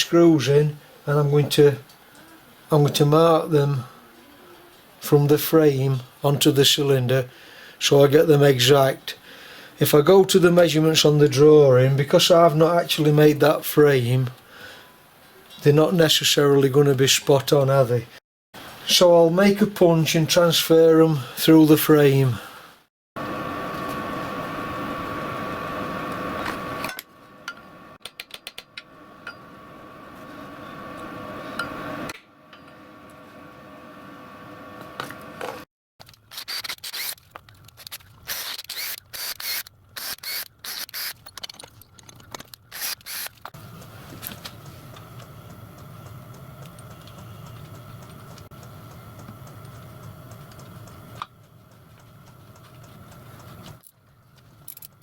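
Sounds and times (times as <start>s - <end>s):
metalworking machine running: 23.2s - 28.0s, 28.9s - 35.6s
sharp metal clicks and scrapes: 36.0s - 43.6s.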